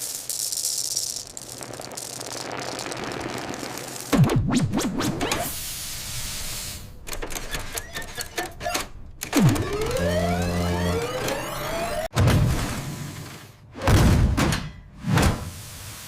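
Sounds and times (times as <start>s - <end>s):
crackling hiss: 0.0s - 4.3s, 5.4s - 7.0s
rising whine with low hum: 9.5s - 12.1s.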